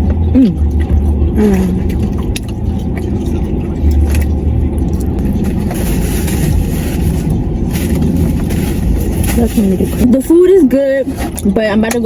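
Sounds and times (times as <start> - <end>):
car cabin engine and road rumble: 0.0 - 12.0.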